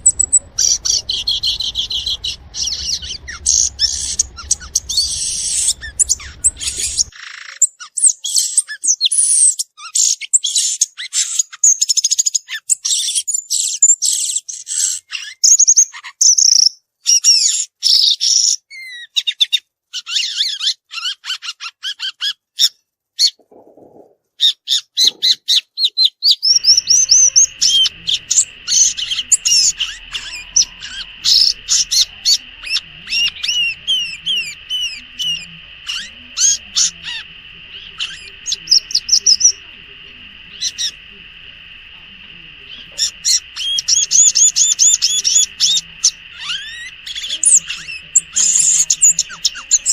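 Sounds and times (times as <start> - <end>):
bird singing high chirps: 0.0 - 16.7, 24.7 - 49.9.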